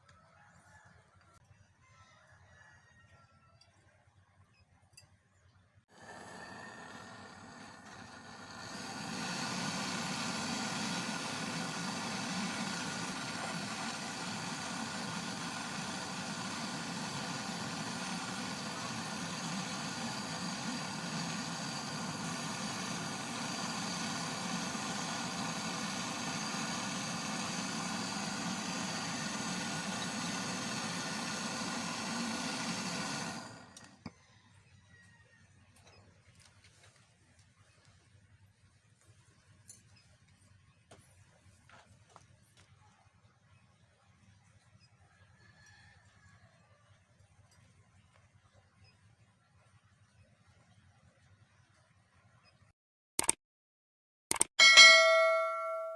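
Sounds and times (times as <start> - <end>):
gas torch flame roaring hiss: 5.9 - 34.1.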